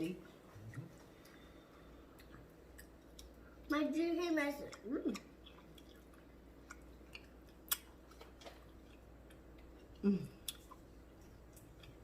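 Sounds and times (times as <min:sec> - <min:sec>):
mouth clicks and smacks: 0:04.7 - 0:09.4.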